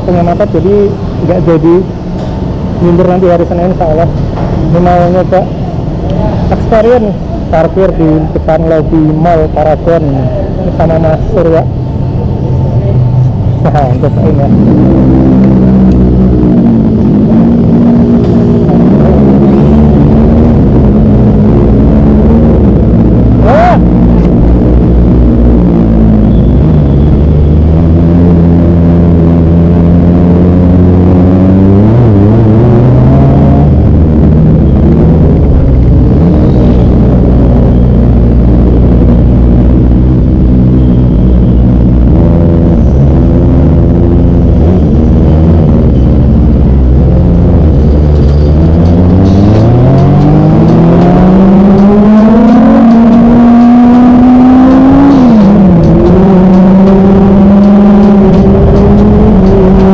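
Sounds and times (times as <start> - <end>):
motorcycle engine revving: 13.0 - 59.9.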